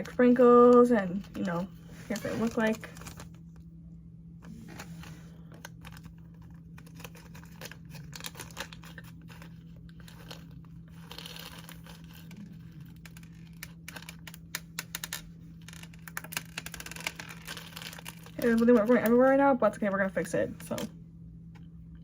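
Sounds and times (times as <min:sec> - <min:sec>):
plastic packaging crinkling: 0:04.5 - 0:19.2.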